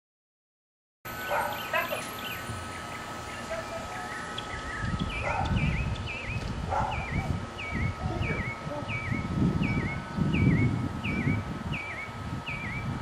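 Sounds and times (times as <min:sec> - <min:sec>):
bird chirping: 0:01.1 - 0:13.0.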